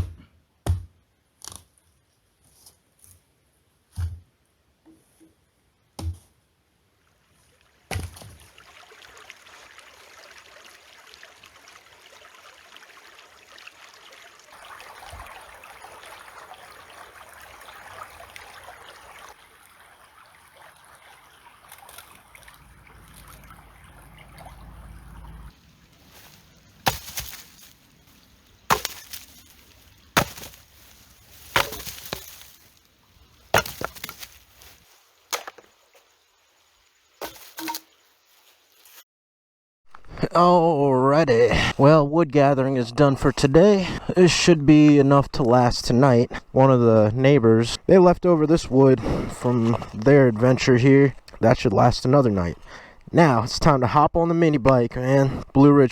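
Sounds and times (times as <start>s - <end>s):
stream running: 7.0s - 38.9s
hatchet splitting firewood: 26.0s - 35.7s, 37.2s - 37.9s.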